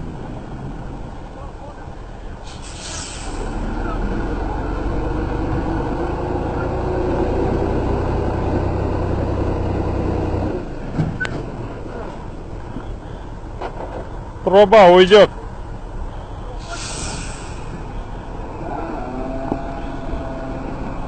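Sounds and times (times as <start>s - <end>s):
truck engine running under load: 0.0s - 14.5s, 15.3s - 21.0s.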